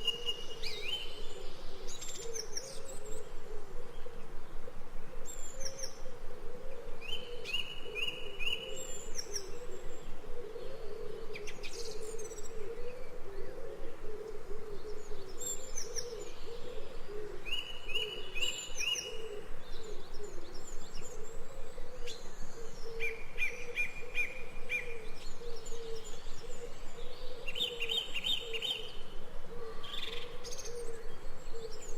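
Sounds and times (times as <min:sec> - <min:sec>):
birds singing: 0:00.0 - 0:04.4, 0:06.8 - 0:31.9.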